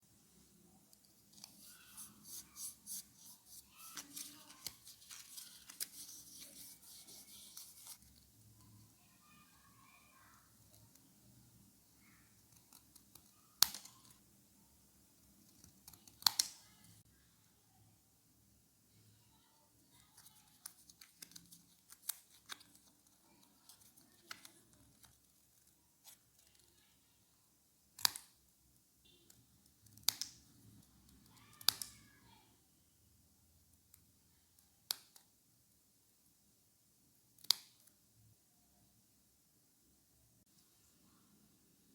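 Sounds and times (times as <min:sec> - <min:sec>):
rustling handling noises: 0:00.8 - 0:08.9
faint sharp clicks and taps: 0:19.9 - 0:26.9, 0:37.4 - 0:38.0.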